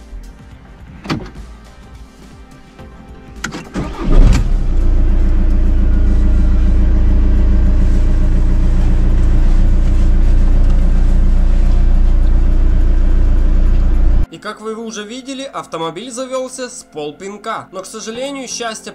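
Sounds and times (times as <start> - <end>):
starter motor cranking: 3.4 - 9.8
car engine idling: 3.7 - 14.3.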